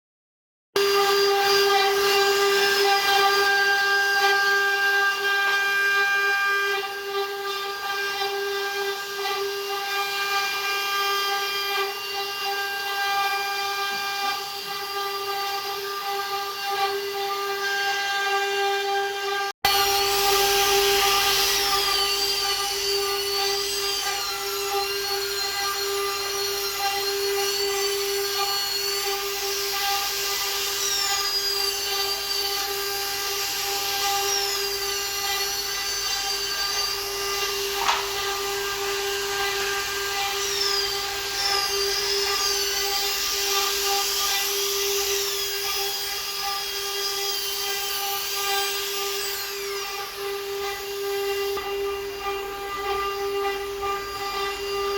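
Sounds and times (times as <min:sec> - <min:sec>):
wood router spindle whining: 0:00.8 - 0:54.9
sharp click: 0:37.8 - 0:38.4.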